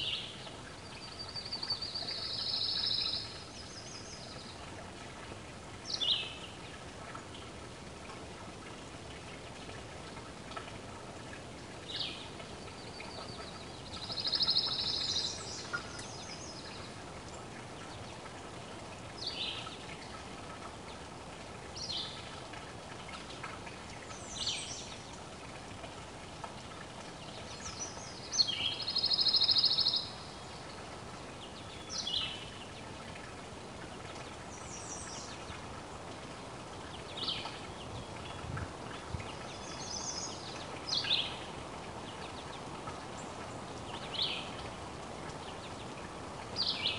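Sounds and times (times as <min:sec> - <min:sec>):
songbirds calling: 0:00.0 - 0:04.8, 0:05.8 - 0:07.3, 0:11.8 - 0:18.4, 0:27.2 - 0:33.2, 0:33.9 - 0:46.9
faint outdoor hiss: 0:00.0 - 0:46.9.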